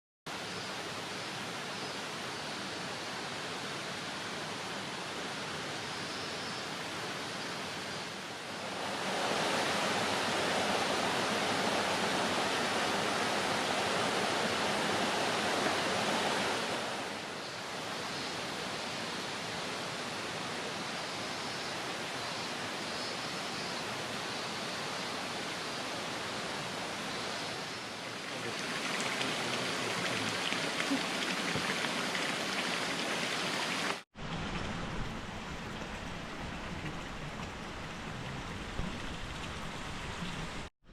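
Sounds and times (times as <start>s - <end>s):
water flowing: 8.1s - 18.5s, 26.0s - 40.7s.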